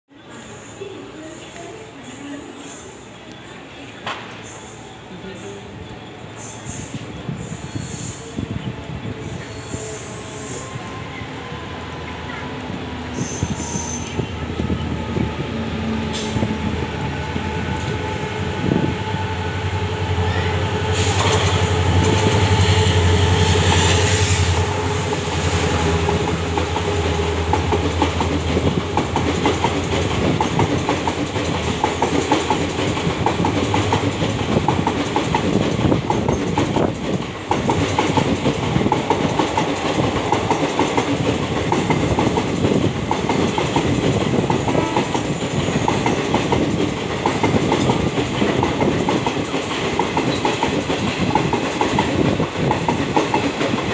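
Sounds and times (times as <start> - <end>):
train wheels clickety-clack: 20.4 - 53.9.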